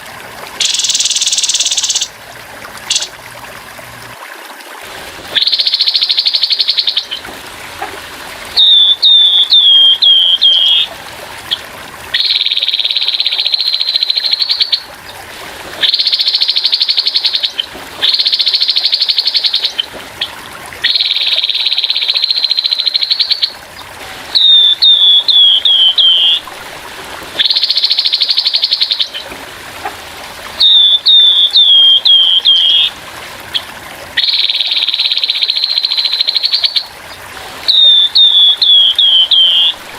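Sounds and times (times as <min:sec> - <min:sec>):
faint trickling water: 0:00.0 - 0:39.9
bird singing buzzy trills: 0:00.6 - 0:02.2, 0:02.8 - 0:03.2, 0:05.4 - 0:07.2, 0:08.6 - 0:10.9, 0:11.5 - 0:15.2, 0:15.8 - 0:23.6, 0:24.4 - 0:26.4, 0:27.4 - 0:29.3, 0:30.6 - 0:32.9, 0:33.5 - 0:39.8.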